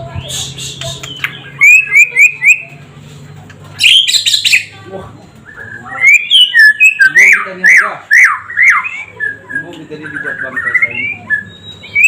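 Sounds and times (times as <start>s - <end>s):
bird singing whistled notes: 5.4s - 12.0s.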